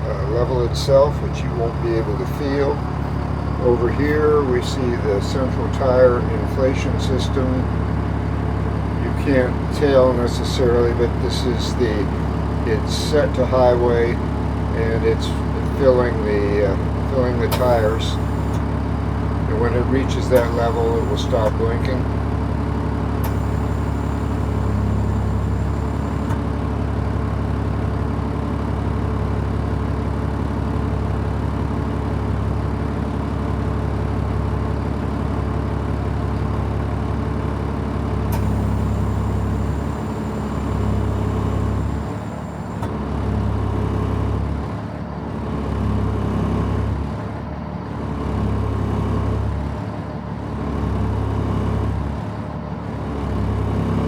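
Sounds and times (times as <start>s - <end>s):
diesel truck engine idling: 0.0s - 54.0s
tire inflation system filling tires: 14.8s - 22.2s, 23.1s - 26.5s, 38.2s - 43.0s.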